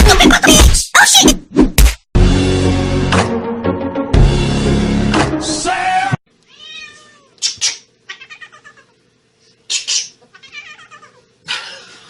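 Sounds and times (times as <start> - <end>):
cat yowling and meowing: 6.5 - 7.4, 8.1 - 9.0, 10.3 - 11.3.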